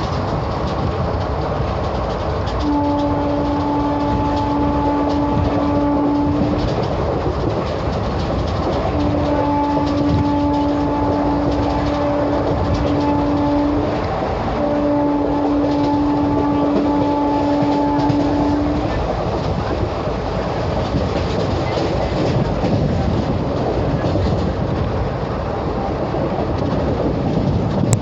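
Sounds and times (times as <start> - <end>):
train rumble and wheel clatter: 0.0 - 28.0
train horn blasts: 2.6 - 7.0, 8.7 - 19.4.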